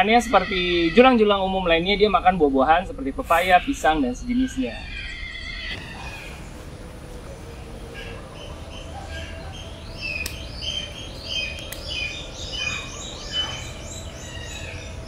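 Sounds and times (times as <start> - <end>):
small birds chirping: 3.2 - 15.0
sharp clicks: 10.2 - 10.6, 11.4 - 12.2.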